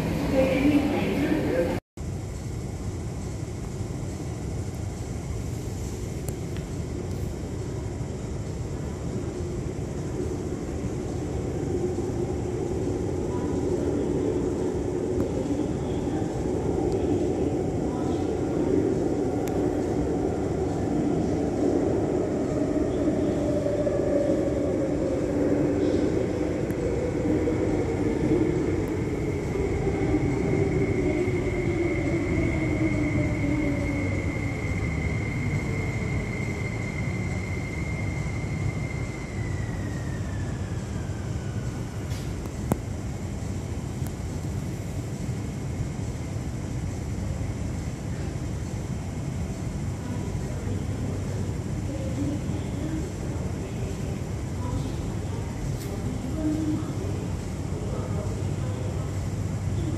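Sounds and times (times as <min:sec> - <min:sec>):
electric train rumbling: 0:00.0 - 0:59.9.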